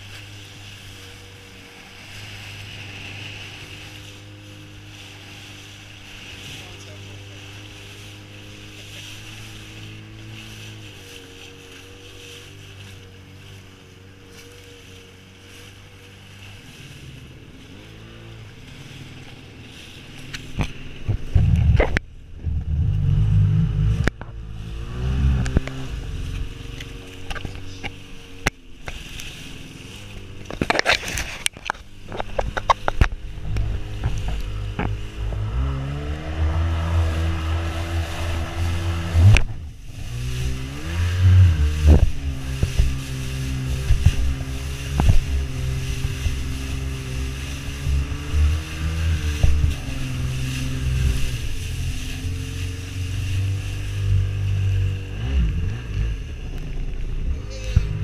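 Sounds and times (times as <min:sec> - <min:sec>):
jet ski engine: 0:00.0 - 0:58.0
wind buffeting microphone: 0:16.8 - 0:58.0.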